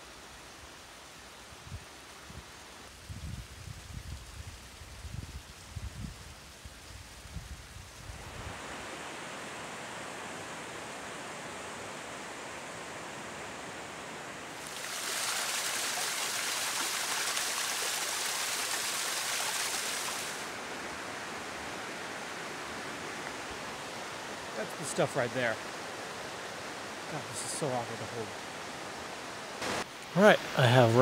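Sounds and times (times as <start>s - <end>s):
rushing river water: 8.0s - 31.0s.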